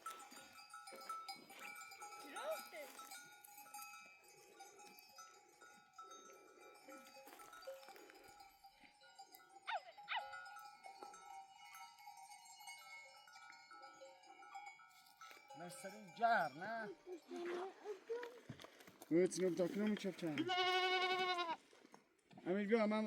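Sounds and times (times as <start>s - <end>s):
goat bells ringing faintly: 0.0s - 23.0s
goat bleats: 20.4s - 21.6s.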